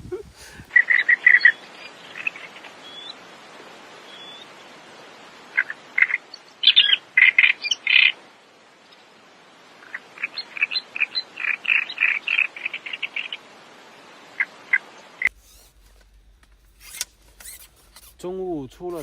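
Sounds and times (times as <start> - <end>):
steady hiss: 0.0 - 19.0
bird chirping: 0.6 - 3.2, 4.0 - 4.5, 5.6 - 8.2, 9.8 - 13.4.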